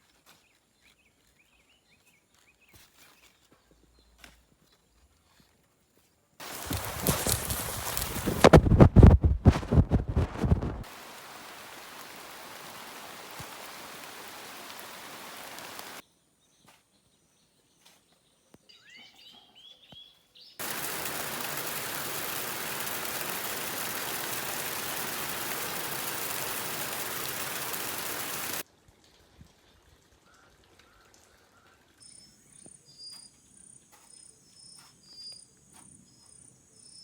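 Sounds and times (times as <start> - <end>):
rain falling: 6.4 - 16.0, 20.6 - 28.6
bird chirping: 18.4 - 20.6.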